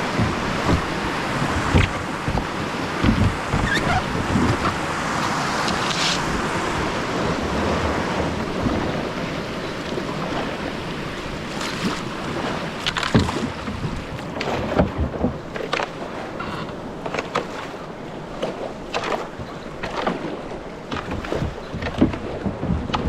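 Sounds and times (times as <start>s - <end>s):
creek water rushing: 0.0s - 14.4s.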